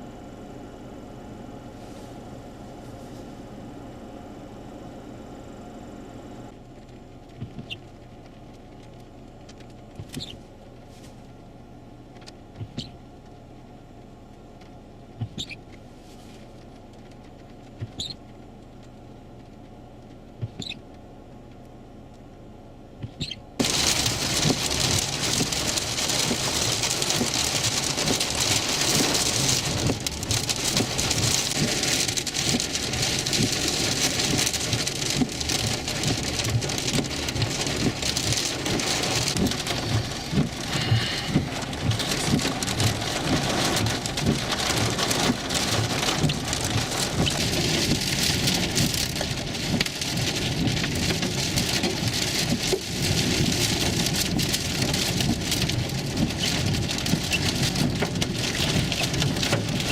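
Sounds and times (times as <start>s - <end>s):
rain and hail drumming on vehicle: 23.2s - 59.9s.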